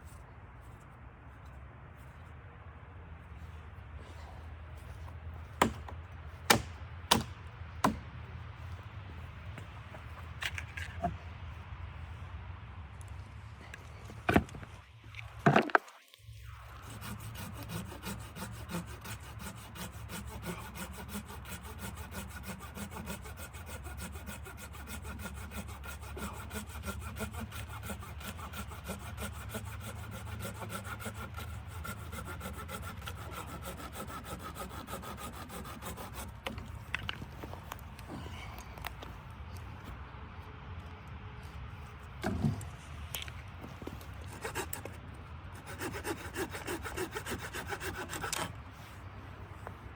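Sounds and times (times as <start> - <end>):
wood being sawn: 16.6 - 38.2, 42.2 - 42.8, 44.2 - 49.0.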